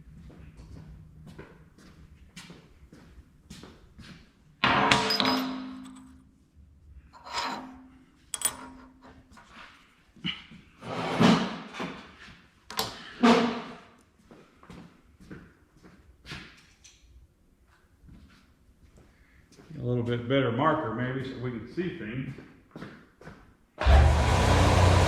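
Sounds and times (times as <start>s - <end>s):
metal tools clanking on workbench: 4.6s - 6.2s, 7.2s - 9.2s.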